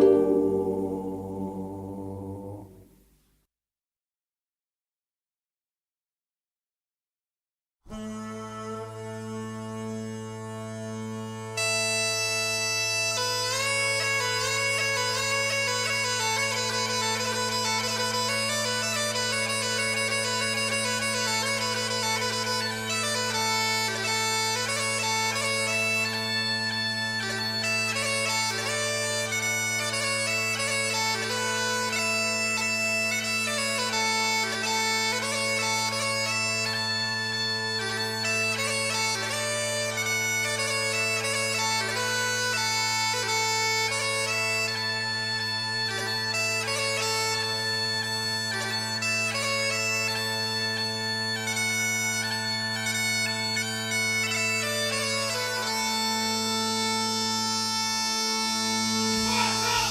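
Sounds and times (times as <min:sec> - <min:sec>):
bagpipe melody over drones: 0:00.0 - 0:02.8, 0:08.0 - 0:59.9.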